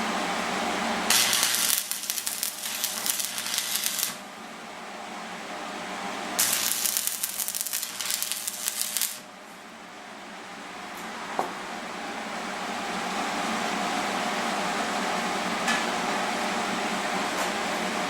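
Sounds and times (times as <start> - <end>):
steady hum: 0.0 - 15.5
welding arc crackling: 1.1 - 4.2, 6.4 - 9.3.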